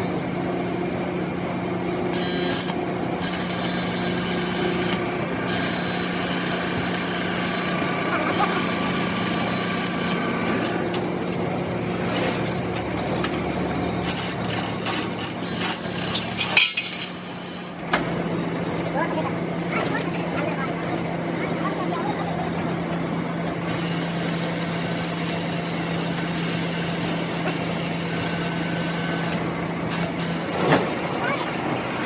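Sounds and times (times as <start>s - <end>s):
workshop noise: 0.0s - 32.0s
motor humming: 1.5s - 32.0s.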